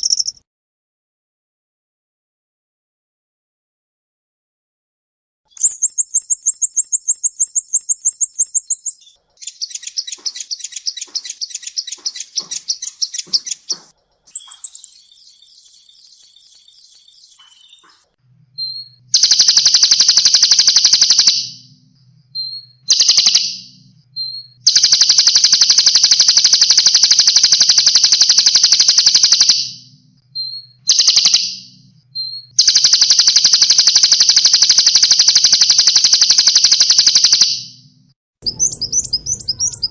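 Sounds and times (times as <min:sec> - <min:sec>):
songbird fast high trills: 0:00.0 - 0:00.4, 0:05.5 - 0:21.6
songbird long buzzy trills: 0:00.0 - 0:00.4, 0:05.5 - 0:39.9.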